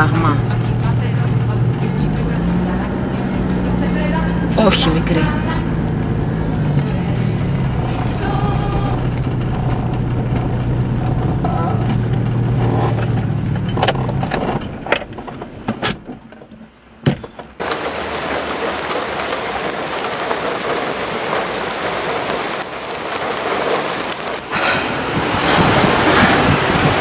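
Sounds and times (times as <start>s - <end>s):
car engine humming: 0.0s - 27.0s
wind on microphone: 24.4s - 27.0s.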